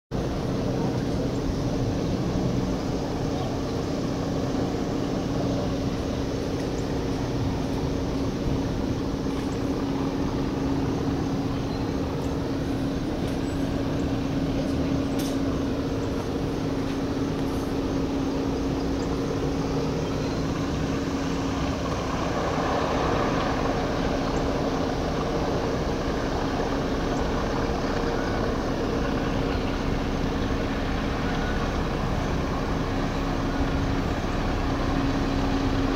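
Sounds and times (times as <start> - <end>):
diesel locomotive engine humming: 0.1 - 35.9
rushing rolling noise: 0.1 - 35.9.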